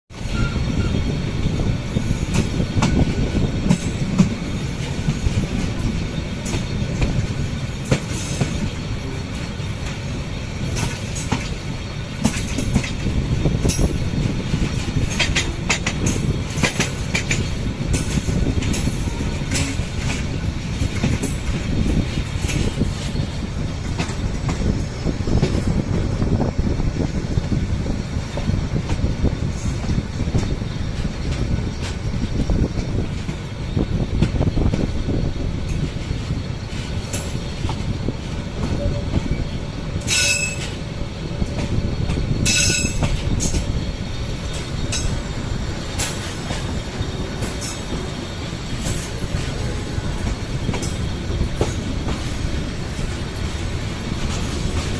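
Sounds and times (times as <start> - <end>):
train wheels rumbling: 0.1 - 54.9
wheels clicking over rail joints: 44.4 - 53.1.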